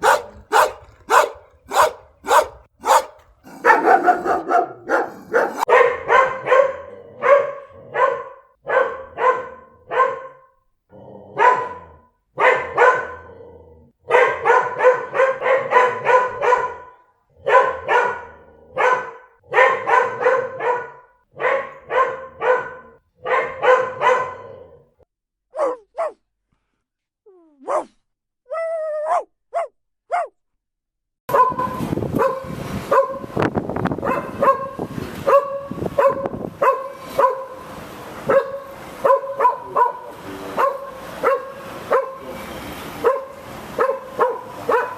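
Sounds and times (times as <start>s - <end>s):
dogs whining and yelping: 0.0s - 5.7s
dogs barking: 0.0s - 10.4s, 11.3s - 13.3s, 14.1s - 24.6s, 31.3s - 33.3s, 34.0s - 42.4s, 43.0s - 44.9s.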